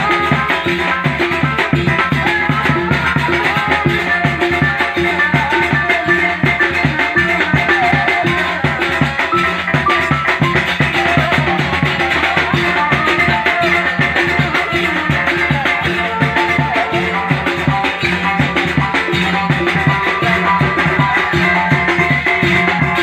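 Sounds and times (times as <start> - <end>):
live band music: 0.0 - 23.0
steady drum beat: 0.0 - 23.0.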